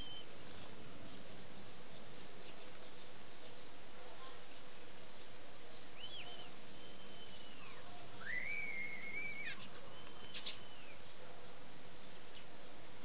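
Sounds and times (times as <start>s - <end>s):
songbird whistling clear notes: 6.0s - 11.0s.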